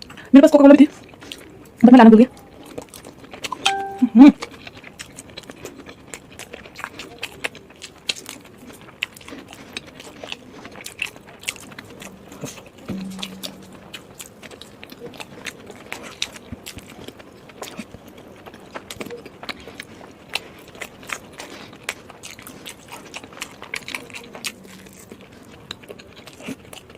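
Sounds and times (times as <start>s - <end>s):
person chewing with wet smacks: 0.9s - 3.6s, 4.4s - 13.7s, 14.3s - 26.9s
short low hum: 12.9s - 14.0s.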